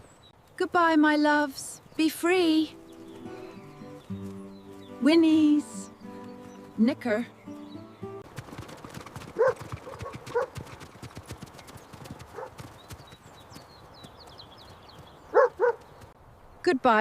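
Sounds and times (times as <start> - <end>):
horse hooves clip-clopping: 2.6 - 16.2.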